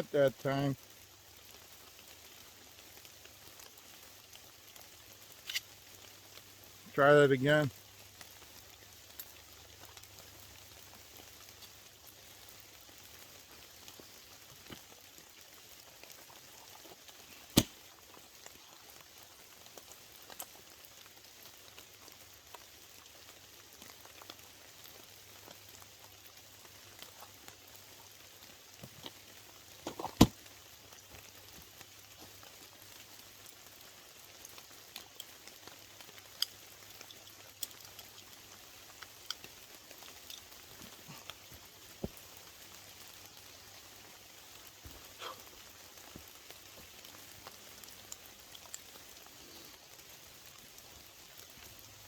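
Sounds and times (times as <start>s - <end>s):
light rain pattering: 0.0s - 52.0s
sharp cracks: 17.4s - 18.1s
faint ticks: 46.2s - 50.1s.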